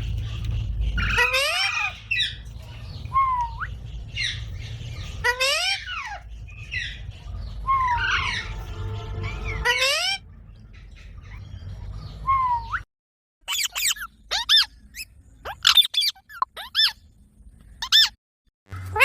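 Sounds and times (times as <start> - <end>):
parrot squawking: 0.3 - 10.2, 13.5 - 17.0, 17.8 - 18.2.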